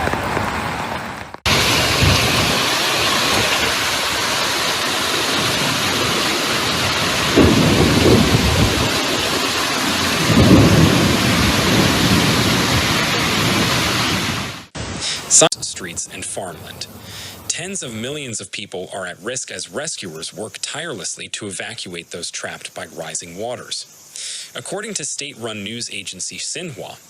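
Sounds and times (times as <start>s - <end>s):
heavy rain pouring: 0.0s - 16.5s
low thunder rumbles: 1.5s - 14.6s.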